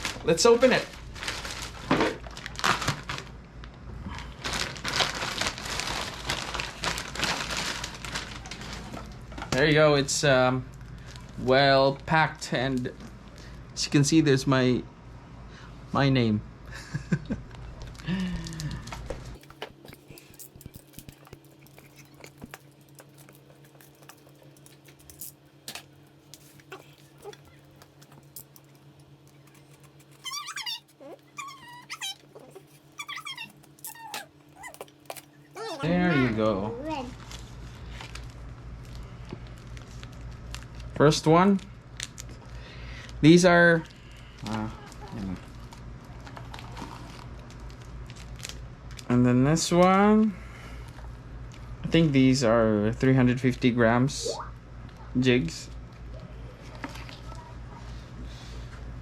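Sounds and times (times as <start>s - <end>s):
wrapping crinkling and rustling: 0.0s - 9.8s, 10.7s - 11.5s, 17.6s - 43.2s, 43.8s - 49.2s
steady low hum: 0.0s - 59.0s
package being unwrapped: 0.8s - 9.2s, 17.8s - 35.8s, 44.3s - 49.1s.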